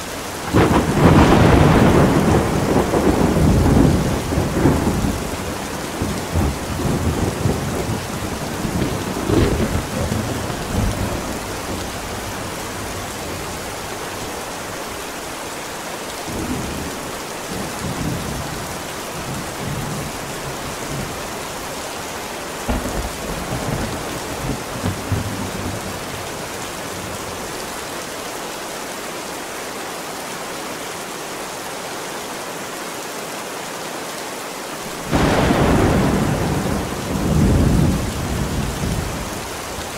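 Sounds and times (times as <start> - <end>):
steady rain: 0.0 - 39.9
rolling thunder: 0.4 - 14.3, 22.7 - 27.5, 35.0 - 39.9.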